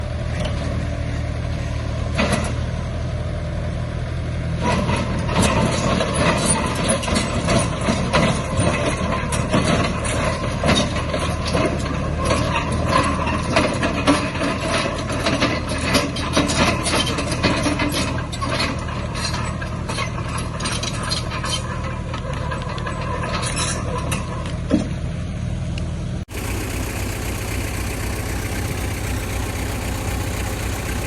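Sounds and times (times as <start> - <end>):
heavy diesel engine running: 0.0 - 31.0
metallic clanking and rattling: 4.6 - 24.5, 26.3 - 31.0.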